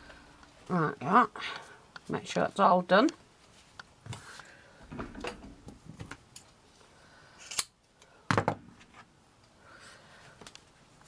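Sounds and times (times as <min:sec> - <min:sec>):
rustling of craft materials: 0:01.6 - 0:06.9.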